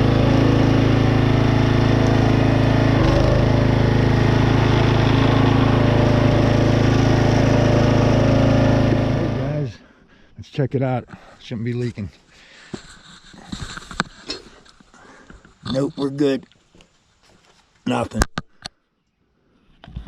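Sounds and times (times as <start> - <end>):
small gasoline engine running: 0.0 - 9.7.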